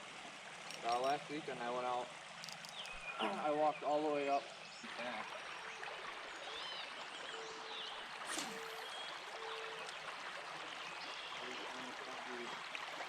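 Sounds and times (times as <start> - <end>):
water running over rocks: 0.0 - 13.0
sharp click: 2.4 - 3.0.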